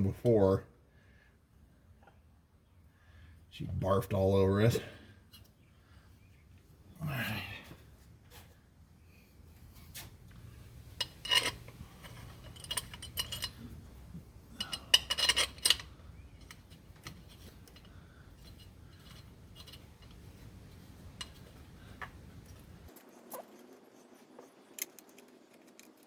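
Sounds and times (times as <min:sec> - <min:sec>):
metal parts and tools clinking: 0:10.8 - 0:26.0.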